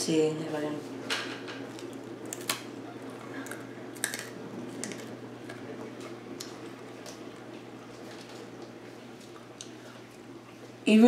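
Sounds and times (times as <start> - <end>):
crunching clicks: 1.7 - 7.5
hard biscuit cracking when bitten: 1.8 - 5.7.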